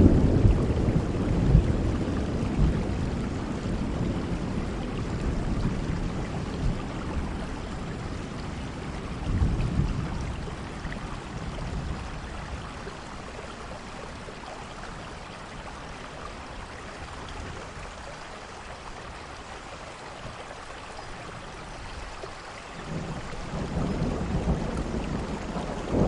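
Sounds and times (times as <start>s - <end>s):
thunder rumbling: 0.0s - 13.8s, 22.8s - 26.0s
steady rain falling: 0.0s - 26.0s.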